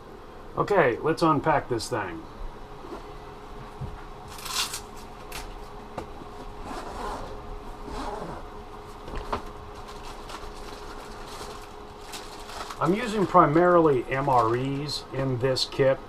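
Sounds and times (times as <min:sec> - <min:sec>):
steady low hum: 0:00.0 - 0:16.0
bag rustling and scraping: 0:06.6 - 0:13.0.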